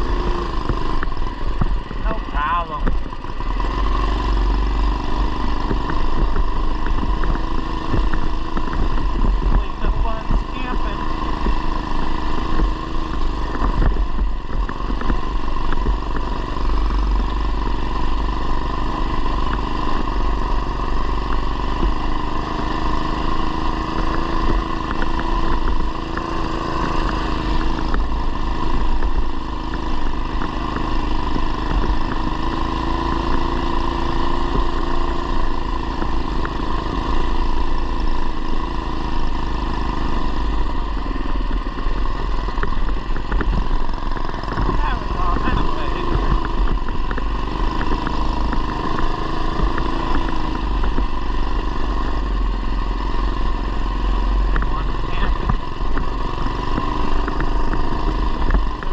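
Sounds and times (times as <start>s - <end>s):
mini bike engine running: 0.0s - 58.9s.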